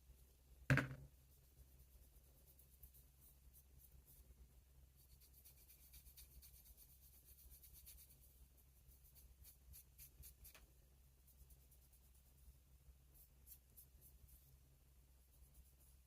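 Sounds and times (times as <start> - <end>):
scratchy rubbing strokes: 5.0 - 10.6.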